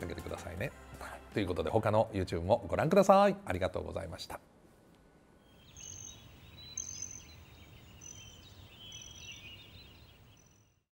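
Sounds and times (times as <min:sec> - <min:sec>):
faint bird chirps: 0:05.3 - 0:10.9.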